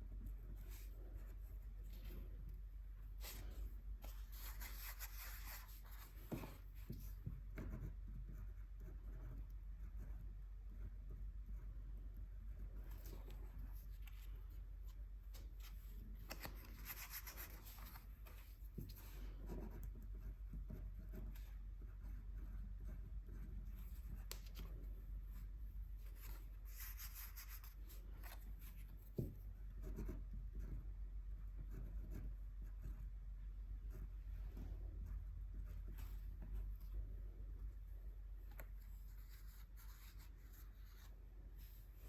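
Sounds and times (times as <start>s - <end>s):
paintbrush strokes on paper: 0.3s - 7.3s, 12.8s - 29.2s, 33.8s - 42.0s.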